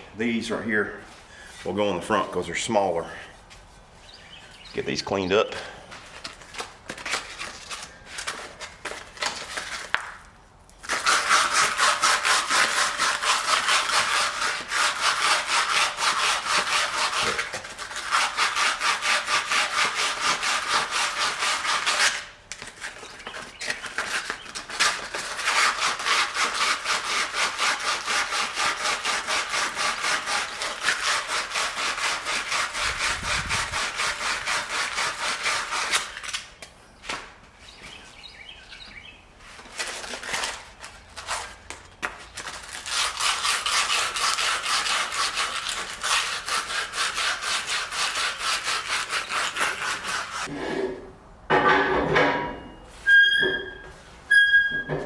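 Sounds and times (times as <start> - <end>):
sandpaper rasping on metal: 10.9 - 36.3, 42.4 - 50.5.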